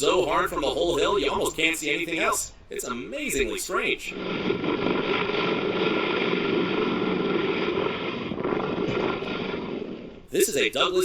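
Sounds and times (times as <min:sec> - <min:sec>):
wind noise on microphone: 0:03.4 - 0:10.4
helicopter engines and rotor roaring: 0:04.1 - 0:10.4.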